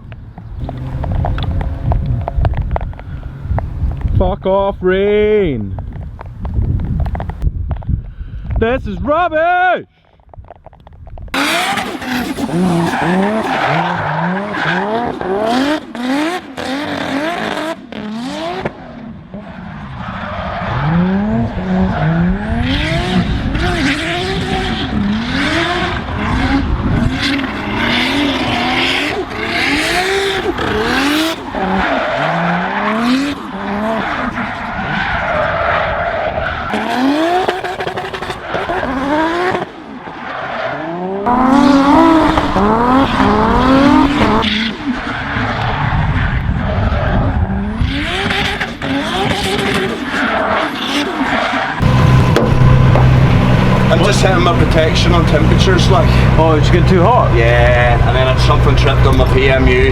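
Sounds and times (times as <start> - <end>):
tyres skidding: 0.3 - 4.2, 11.4 - 59.9
car engine revving hard: 0.6 - 3.4, 11.4 - 18.7, 20.6 - 34.8, 36.7 - 39.8, 40.8 - 45.8, 47.2 - 59.9.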